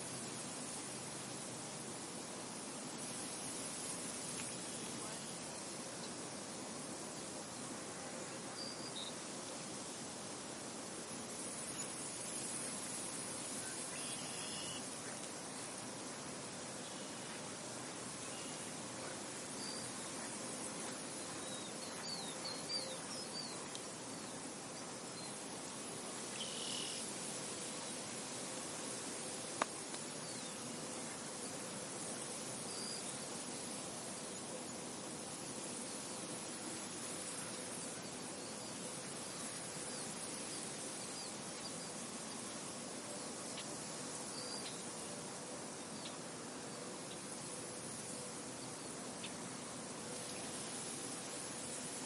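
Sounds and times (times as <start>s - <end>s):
wind blowing through a field: 0.0s - 52.0s
faint bird chirps: 13.3s - 15.2s, 19.5s - 24.4s, 26.3s - 27.0s.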